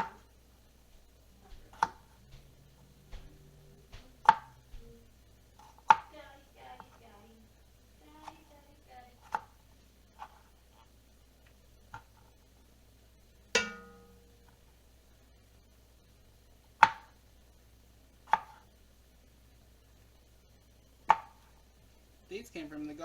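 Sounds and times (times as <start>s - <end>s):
knife chopping on cutting board: 1.6s - 2.5s, 4.0s - 4.6s, 5.6s - 6.1s, 16.8s - 17.2s, 18.3s - 18.6s
metallic ringing knock: 13.6s - 14.4s.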